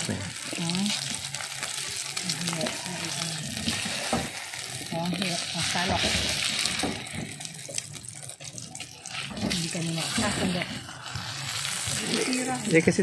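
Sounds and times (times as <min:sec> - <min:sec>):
oil sizzling and spitting: 0:00.0 - 0:13.0
metal spatula scraping wok: 0:08.3 - 0:13.0.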